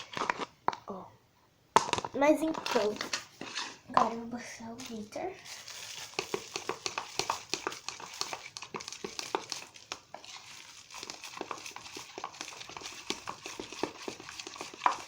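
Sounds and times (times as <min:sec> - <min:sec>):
slime clicks and crackles: 0:04.8 - 0:15.0.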